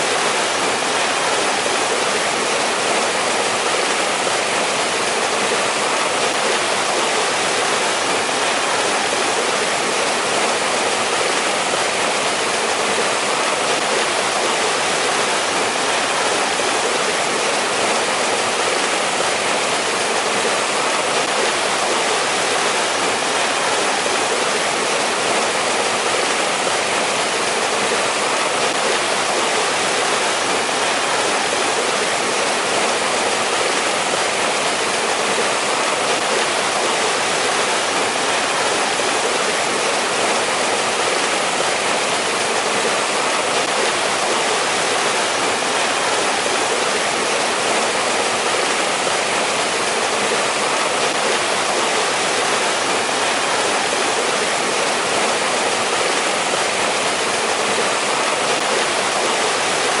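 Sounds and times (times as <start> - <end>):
stream rushing over rocks: 0.0 - 60.0.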